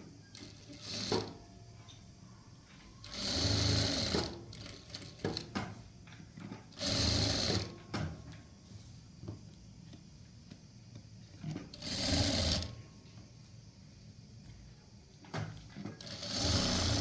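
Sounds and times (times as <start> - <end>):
sewing machine stitching: 0.3 - 1.4, 3.0 - 5.5, 6.7 - 7.7, 11.4 - 12.7, 15.8 - 17.0.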